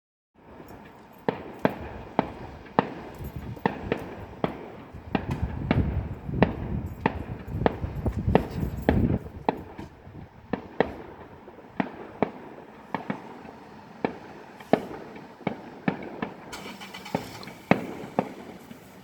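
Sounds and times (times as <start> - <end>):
fireworks sharp bangs: 0.4 - 19.0.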